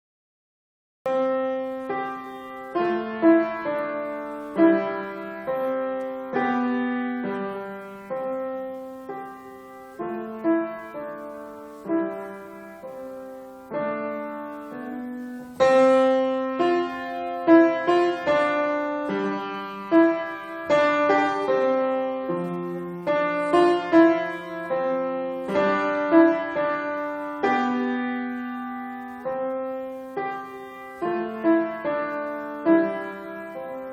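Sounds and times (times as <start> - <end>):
solo piano melody: 1.1 - 33.9.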